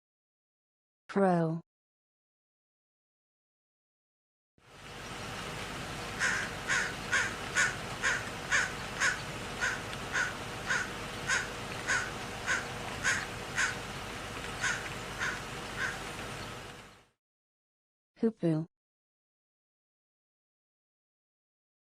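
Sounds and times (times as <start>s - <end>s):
crow cawing: 6.2s - 13.8s, 14.6s - 16.0s.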